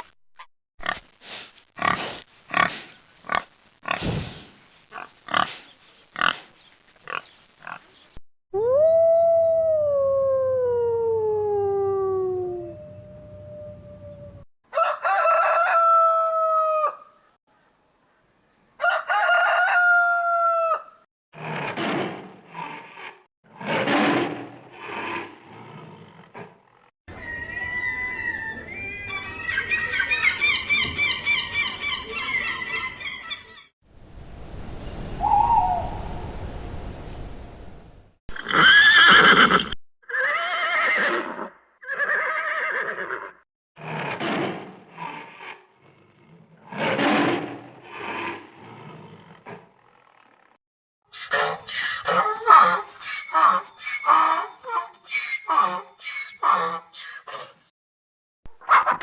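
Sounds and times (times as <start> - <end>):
rooster crowing: 14.7 - 17.1, 18.8 - 21.0, 35.0 - 37.8
drawn-out rising and falling calls: 34.0 - 38.1, 51.2 - 57.6
wavering chirping animal calls: 34.4 - 37.8, 51.2 - 57.6.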